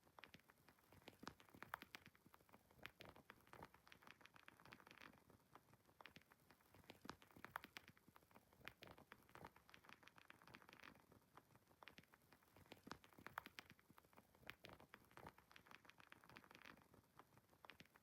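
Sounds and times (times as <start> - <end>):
wood fire crackling: 11.8 - 18.0.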